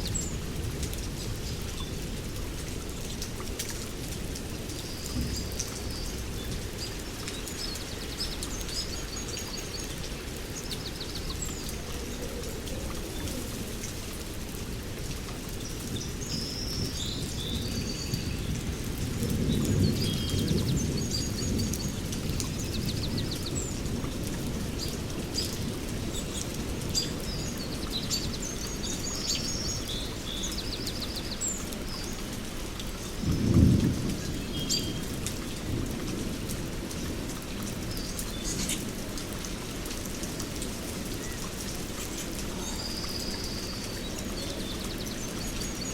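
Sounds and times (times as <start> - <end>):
heavy rain: 0.0 - 45.9
thunder rumbling: 33.1 - 37.9.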